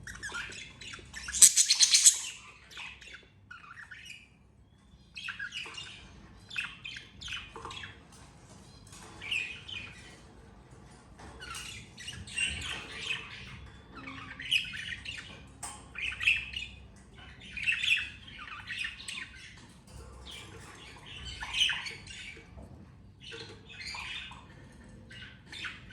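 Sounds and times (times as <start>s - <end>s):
budgerigars chirping and squawking: 0.1s - 4.3s, 11.5s - 22.6s, 23.2s - 25.9s.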